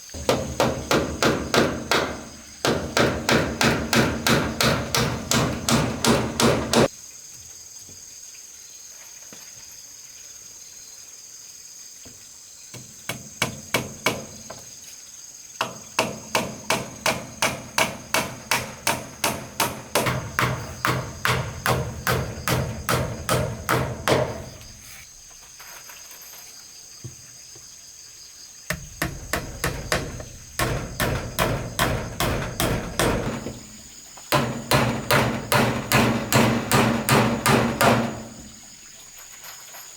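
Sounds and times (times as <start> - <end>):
high insect chorus: 0.0 - 39.9
hammer striking wood: 0.2 - 6.9, 12.8 - 14.6, 15.6 - 24.7, 28.7 - 38.6.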